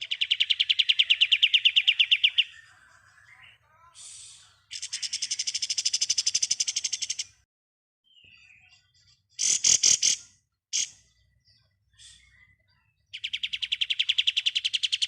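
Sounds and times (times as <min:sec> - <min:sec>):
bird rattling trill: 0:09.4 - 0:10.2.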